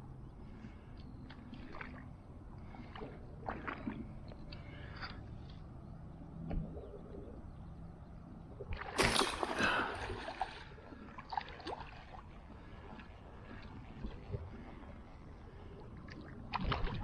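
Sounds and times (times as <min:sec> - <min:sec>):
water splashing: 0:08.7 - 0:12.8.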